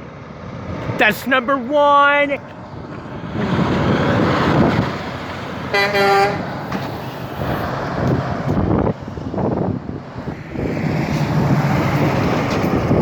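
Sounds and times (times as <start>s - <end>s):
truck engine and tyre noise: 0.0s - 13.0s
vehicle passing: 0.1s - 13.0s
wind on microphone: 3.2s - 5.3s, 7.4s - 13.0s.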